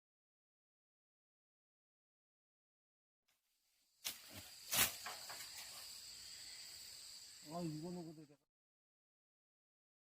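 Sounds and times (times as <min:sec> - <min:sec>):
insects chirring: 0:03.4 - 0:08.5.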